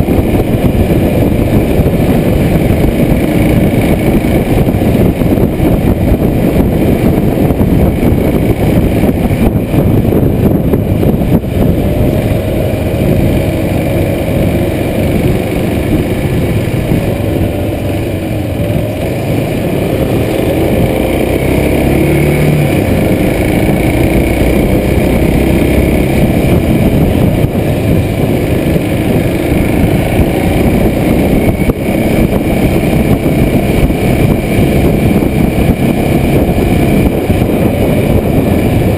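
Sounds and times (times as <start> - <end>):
motorcycle engine revving: 0.0 - 38.9
wind noise on microphone: 0.0 - 38.9.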